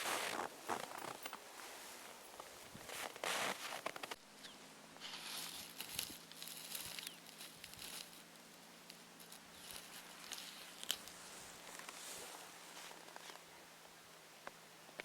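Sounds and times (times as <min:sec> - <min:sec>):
footsteps crunching in snow: 0:00.0 - 0:04.2, 0:05.0 - 0:08.3, 0:08.9 - 0:13.4.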